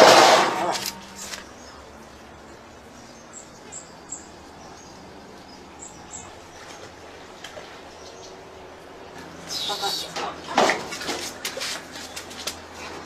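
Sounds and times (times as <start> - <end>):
small bird chirping: 9.4 - 10.2.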